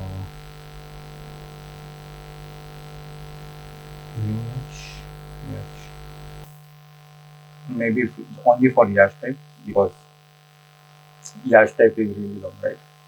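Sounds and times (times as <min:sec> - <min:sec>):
person speaking: 0:00.0 - 0:00.3, 0:04.2 - 0:05.9, 0:07.7 - 0:10.0, 0:11.3 - 0:12.8
electrical mains hum: 0:00.0 - 0:13.0.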